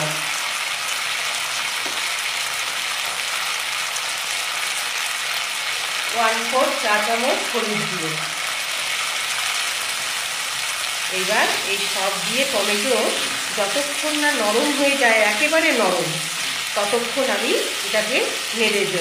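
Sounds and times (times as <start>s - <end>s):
tomatoes sizzling in hot oil: 0.0s - 19.0s
person speaking: 6.1s - 8.4s, 11.1s - 19.0s.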